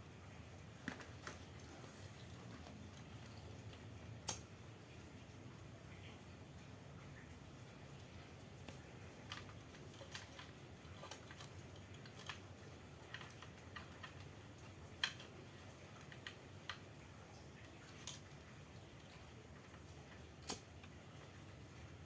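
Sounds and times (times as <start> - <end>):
faint low hum: 0.0 - 22.0
light clicks and taps: 2.4 - 4.6, 7.9 - 21.4.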